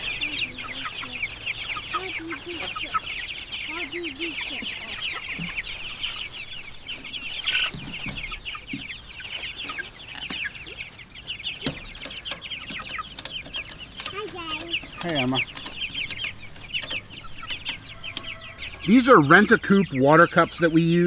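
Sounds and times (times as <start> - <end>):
chicks peeping: 0.0 - 21.0
sharp clicks: 11.6 - 18.3.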